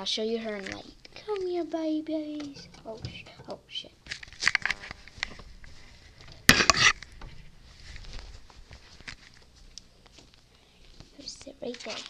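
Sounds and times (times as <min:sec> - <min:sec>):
rustling and knocking handling: 0:02.3 - 0:10.4.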